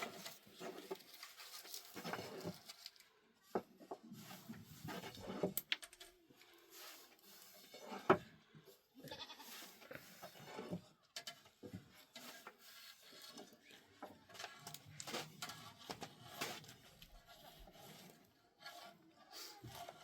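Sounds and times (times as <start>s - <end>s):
goats bleating: 9.0s - 9.5s.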